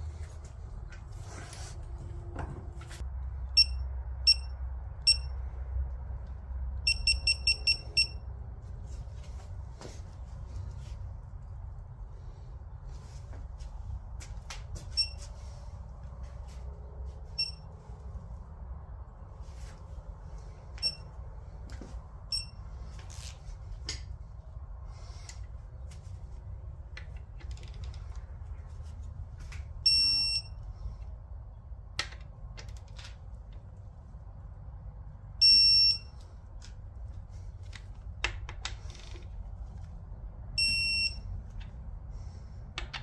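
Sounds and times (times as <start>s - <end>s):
steady low hum: 0.0s - 32.6s
sharp clicks and knocks: 37.7s - 39.4s, 42.7s - 43.0s.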